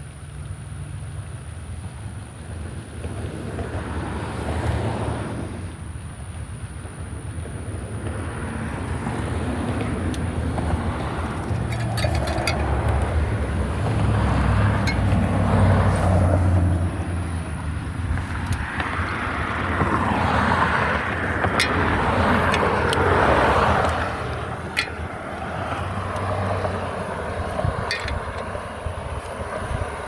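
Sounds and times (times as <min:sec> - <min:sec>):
low engine hum: 0:00.0 - 0:30.0
light clicks and rattles: 0:09.6 - 0:15.5, 0:17.1 - 0:20.2, 0:21.0 - 0:29.4.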